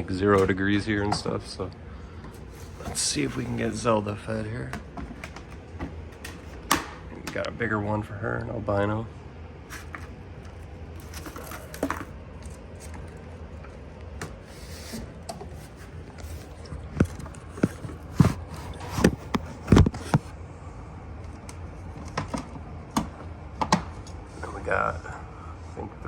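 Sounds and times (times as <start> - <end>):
handling clicks and knocks: 4.2 - 7.5, 9.7 - 14.5, 15.2 - 20.3.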